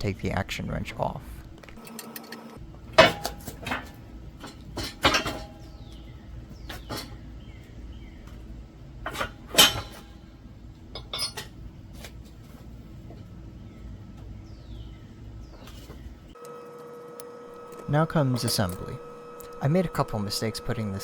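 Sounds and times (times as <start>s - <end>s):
steel tools and rifle parts clanking: 3.0s - 5.8s, 9.0s - 10.2s, 10.9s - 11.6s, 17.6s - 19.6s.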